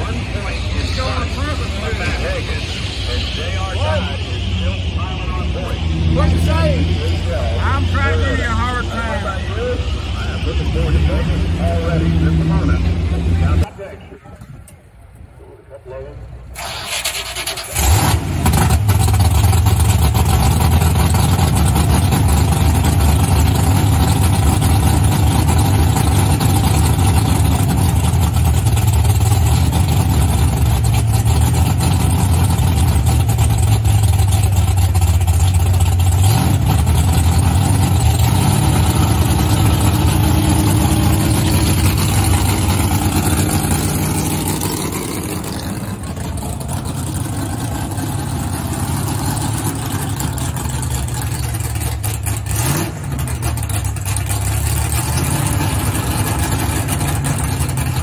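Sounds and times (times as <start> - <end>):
engine starting: 16.5 - 18.3
engine idling loudly: 16.6 - 58.0.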